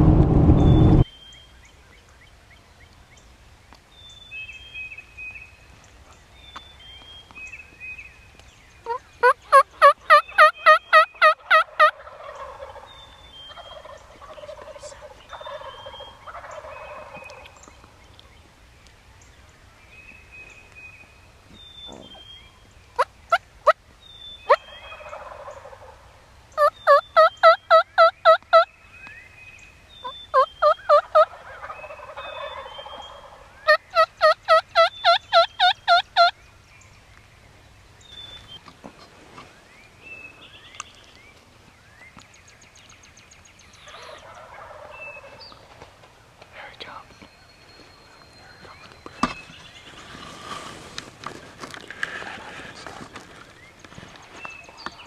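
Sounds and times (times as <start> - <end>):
turkey yelps: 30.3 - 36.3, 43.8 - 45.4
turkey gobbles: 43.8 - 45.8.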